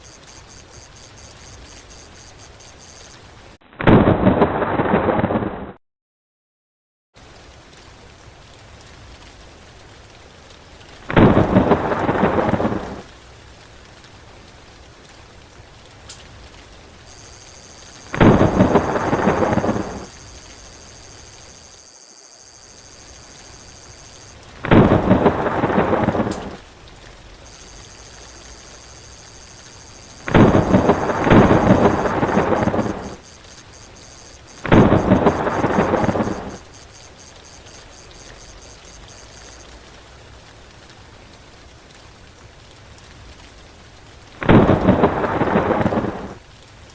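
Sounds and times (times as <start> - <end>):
steady rain: 0.0 - 3.6, 7.2 - 46.9
thunder claps: 17.1 - 21.4, 24.6 - 26.6, 27.5 - 33.3, 34.5 - 36.7.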